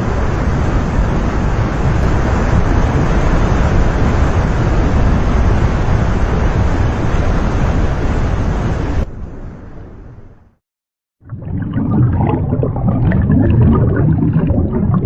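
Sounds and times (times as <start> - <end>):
loud rushing noise with rumble: 0.0 - 10.5.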